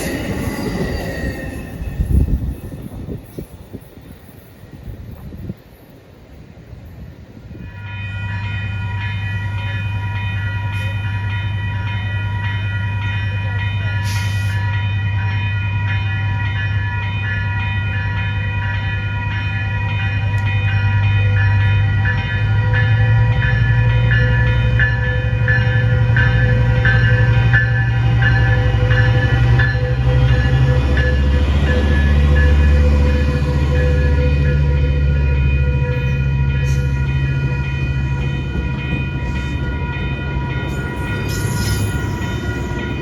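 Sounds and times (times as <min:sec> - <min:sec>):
diesel locomotive engine drone: 0:00.0 - 0:43.0.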